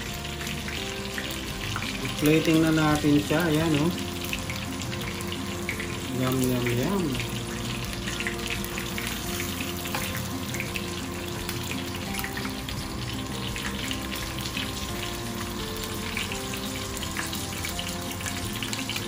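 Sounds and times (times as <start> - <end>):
chicken sizzling in hot oil: 0.0 - 19.0.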